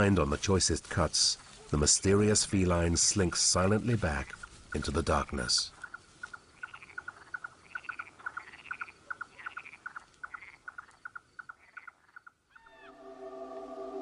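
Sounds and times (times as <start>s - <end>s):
rapid animal chirps: 5.7s - 12.9s
soft higher animal calls: 12.5s - 14.0s
held musical tones: 12.7s - 14.0s.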